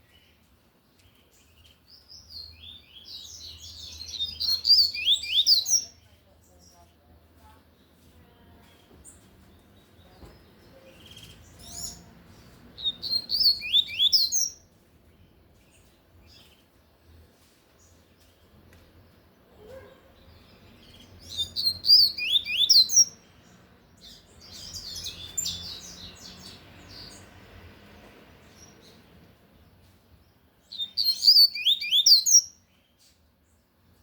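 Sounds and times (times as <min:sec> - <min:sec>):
scratchy bird song: 0:00.0 - 0:34.0
bird whistled song: 0:02.3 - 0:06.0, 0:12.8 - 0:14.6, 0:20.8 - 0:23.2, 0:30.7 - 0:32.7.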